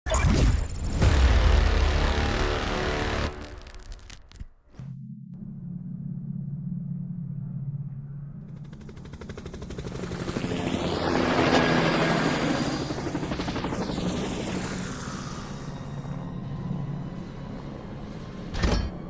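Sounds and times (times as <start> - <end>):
helicopter rotor chop: 0.1 - 3.7, 8.4 - 16.2
low hum: 0.5 - 10.4.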